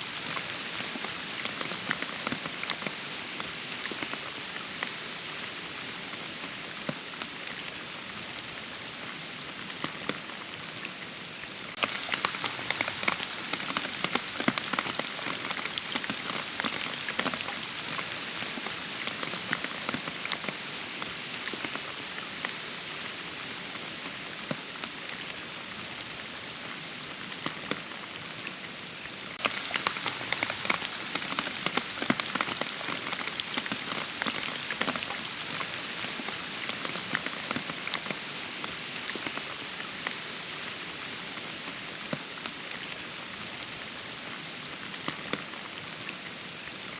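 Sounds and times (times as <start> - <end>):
rain drops tapping: 0.0 - 46.9.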